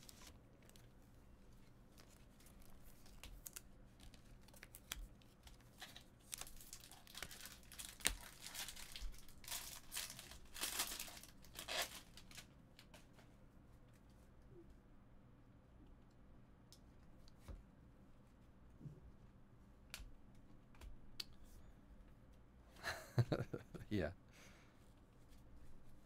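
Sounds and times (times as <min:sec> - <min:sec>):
foil wrappers crinkling and tearing: 0:05.7 - 0:12.5.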